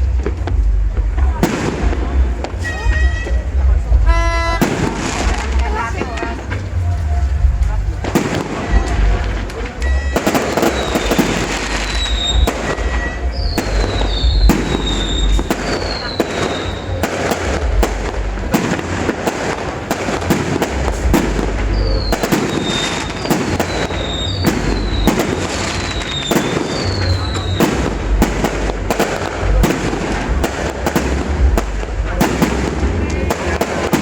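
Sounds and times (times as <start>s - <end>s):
deep fireworks booms: 0.0s - 34.0s
fireworks bangs and crackling: 0.0s - 34.0s
falling whistles: 9.8s - 17.0s, 21.7s - 27.8s.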